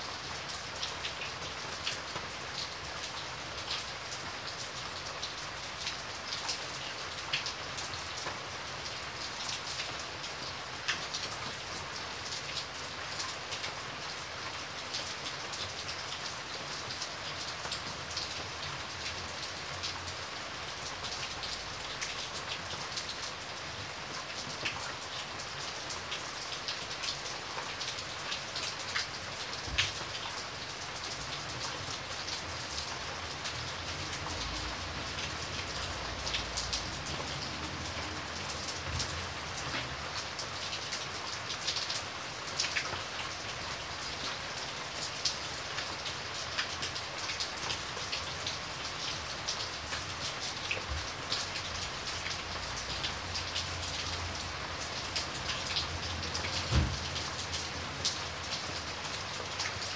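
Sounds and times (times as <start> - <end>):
steady rain hiss: 0.0 - 59.9
raindrops ticking close by: 0.1 - 59.9.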